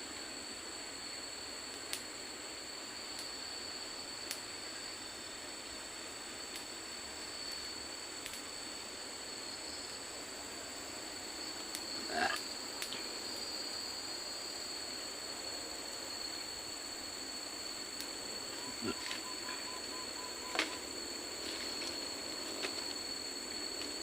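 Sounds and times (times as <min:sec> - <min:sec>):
soft hiss: 0:00.0 - 0:19.0
insects droning: 0:00.0 - 0:24.0
rising animal call: 0:12.0 - 0:12.4, 0:18.6 - 0:19.9.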